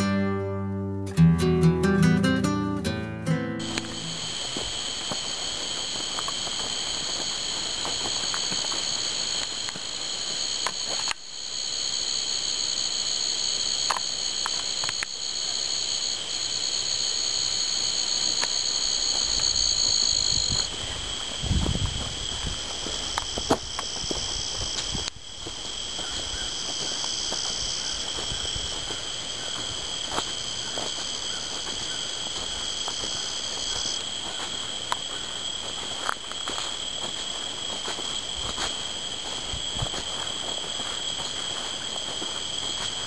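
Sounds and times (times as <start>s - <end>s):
insects chorus: 3.6s - 43.0s
faint clicks: 13.8s - 15.1s.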